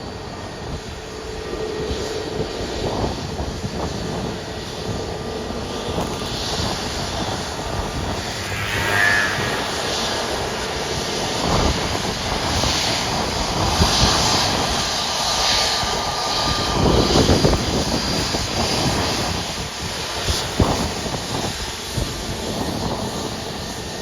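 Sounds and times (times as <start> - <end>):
jet engines roaring: 4.6 - 19.3.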